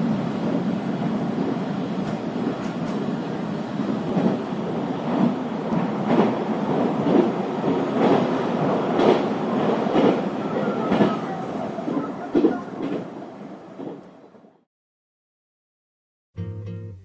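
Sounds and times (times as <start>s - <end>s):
train rumble inside car: 0.0s - 13.2s.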